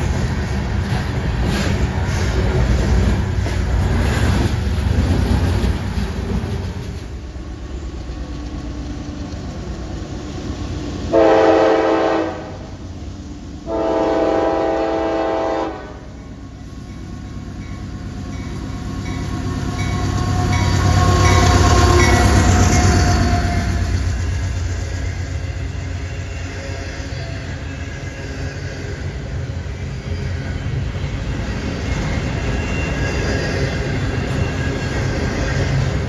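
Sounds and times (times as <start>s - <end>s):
train rumble: 0.0s - 36.0s
locomotive air horn: 11.1s - 12.7s, 13.7s - 16.1s.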